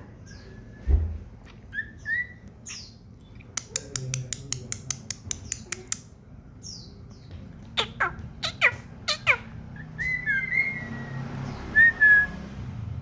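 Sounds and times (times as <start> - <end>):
bird whistled calls: 7.8 - 12.5.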